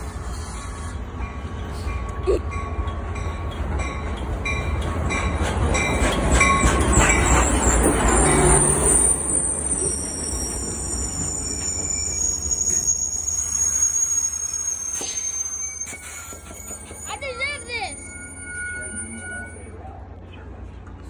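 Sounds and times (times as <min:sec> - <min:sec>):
train brakes squealing: 0:00.0 - 0:02.0, 0:04.8 - 0:20.0
train rumbling with rhythmic clicks: 0:00.0 - 0:21.0.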